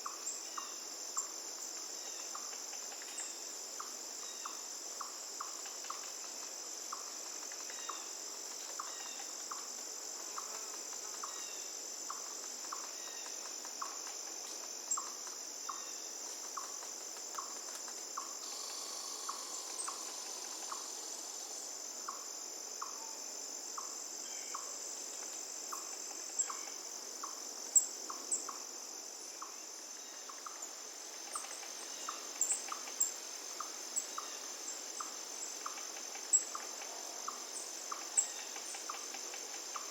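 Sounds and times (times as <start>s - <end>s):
crickets trilling: 0.0s - 39.9s
short lower insect call: 0.0s - 39.9s
flowing water hiss: 18.4s - 22.6s.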